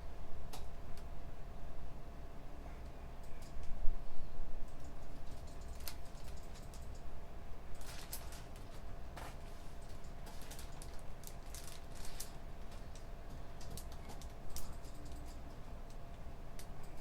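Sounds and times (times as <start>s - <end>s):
low room hum: 0.0s - 17.0s
computer keyboard typing: 4.7s - 7.1s, 9.8s - 16.0s.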